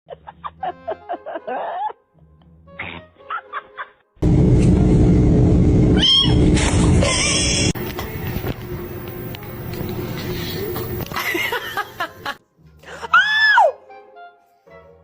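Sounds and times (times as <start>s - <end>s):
music: 0.1s - 4.8s, 7.8s - 15.0s
falling high-pitched cry: 6.0s - 6.4s, 7.0s - 7.8s.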